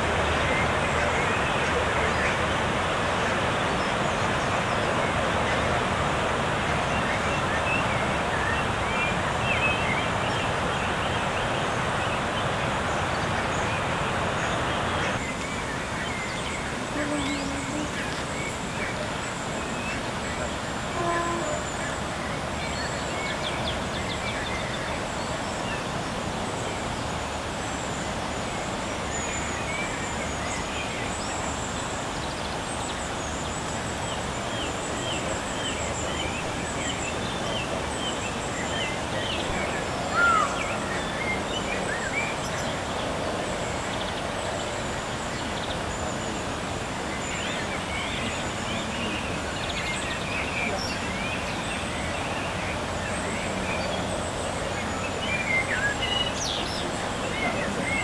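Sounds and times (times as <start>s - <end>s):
steady background hiss: 0.0s - 58.0s
birds chirping and calling: 6.9s - 24.8s, 32.2s - 43.0s.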